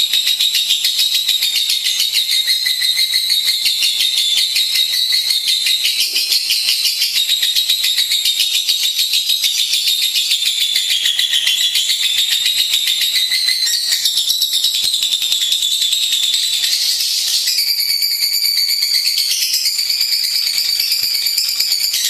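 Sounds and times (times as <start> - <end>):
lovebird chattering trill: 0.4 - 15.0.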